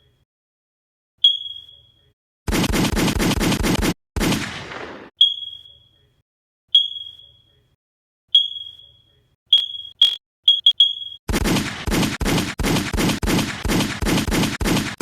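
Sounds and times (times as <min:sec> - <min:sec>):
high electronic beeps: 0:01.3 - 0:01.9, 0:05.2 - 0:05.9, 0:06.8 - 0:07.4, 0:08.4 - 0:11.2.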